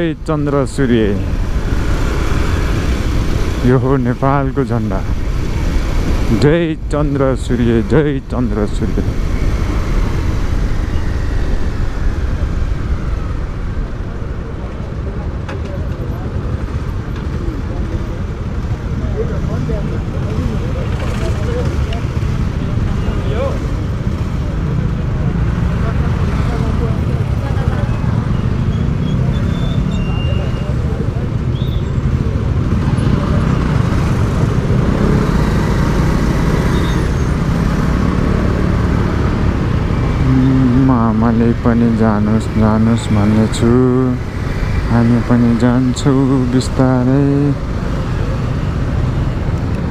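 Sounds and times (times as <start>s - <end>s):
motorcycle engine: 0.0s - 18.6s
wind and road noise: 0.0s - 49.9s.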